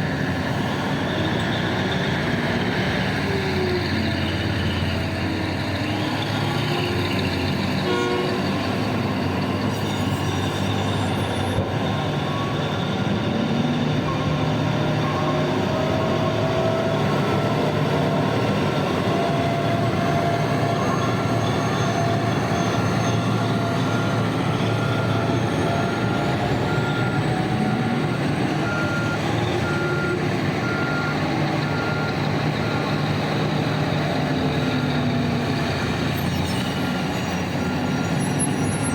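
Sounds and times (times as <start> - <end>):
heavy diesel machinery running: 0.0 - 38.9
reversing alarm beeping: 7.8 - 17.9, 20.6 - 33.8.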